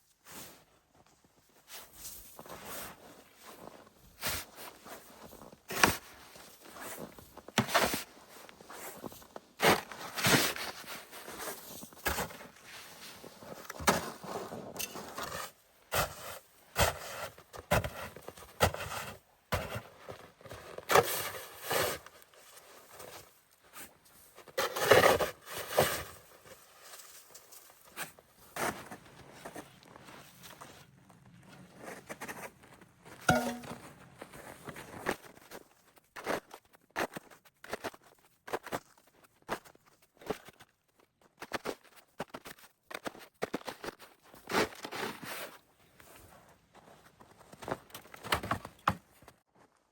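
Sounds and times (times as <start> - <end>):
scrapes and rustles of handling: 18.0 - 28.8
sharp knocks: 33.3 - 33.8.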